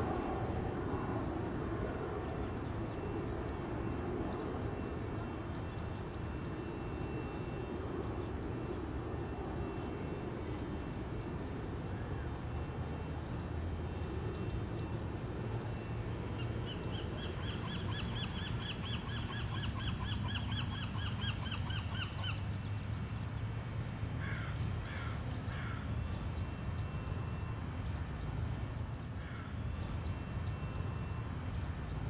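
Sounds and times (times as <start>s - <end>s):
steady low rumble: 0.0s - 18.8s
bird chirping: 15.6s - 23.4s.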